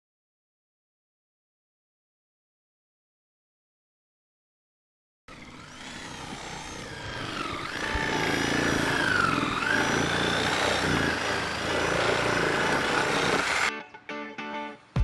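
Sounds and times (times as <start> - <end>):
engine revving: 5.3 - 13.7.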